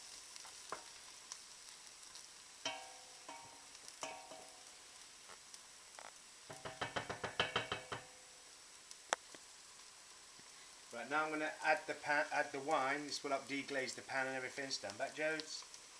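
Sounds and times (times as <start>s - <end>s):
food sizzling in a pan: 0.0s - 15.9s
utensil clinking against pan: 2.7s - 4.5s, 6.5s - 8.1s.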